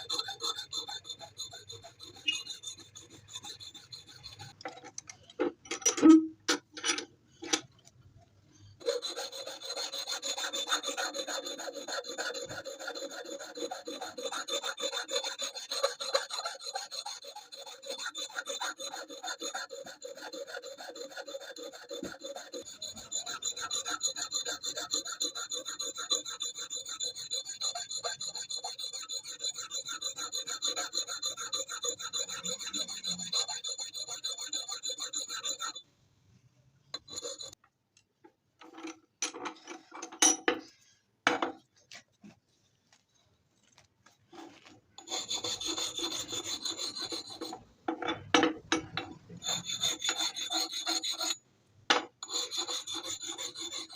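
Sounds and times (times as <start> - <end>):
file rasping on steel: 0.0 - 4.6, 8.8 - 35.8, 37.0 - 37.6, 44.4 - 53.9.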